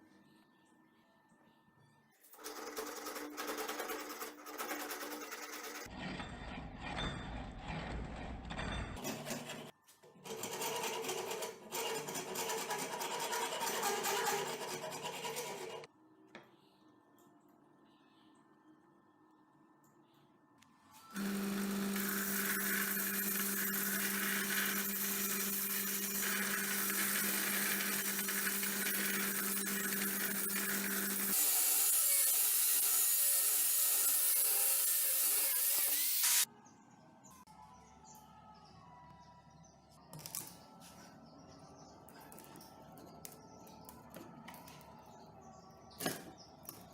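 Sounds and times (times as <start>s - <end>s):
motor hum: 21.1s - 31.4s
small electric power tool running: 21.1s - 36.5s.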